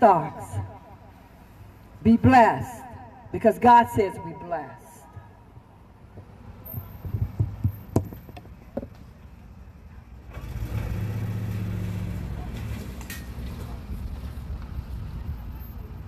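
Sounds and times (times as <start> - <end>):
handling knocks and clicks: 7.0 - 9.1.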